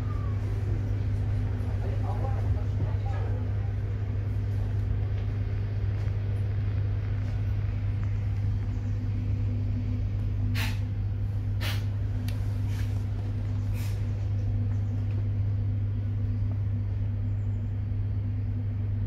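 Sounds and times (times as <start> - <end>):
train interior hum: 0.0 - 19.0
short air hisses: 10.5 - 10.9, 11.6 - 11.9.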